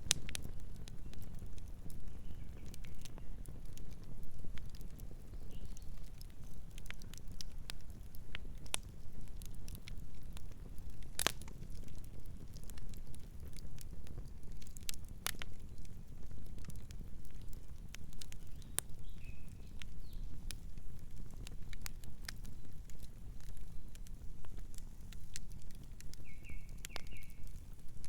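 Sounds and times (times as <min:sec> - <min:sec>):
campfire crackling and popping: 0:00.0 - 0:28.0
low rumble of flames: 0:00.0 - 0:28.0
faint bird chirp: 0:02.1 - 0:03.4, 0:18.4 - 0:20.4, 0:26.2 - 0:27.6.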